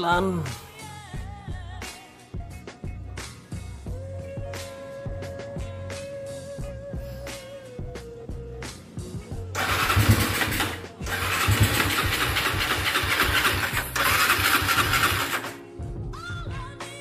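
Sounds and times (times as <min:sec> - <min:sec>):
motorcycle engine revving: 0:09.6 - 0:15.7.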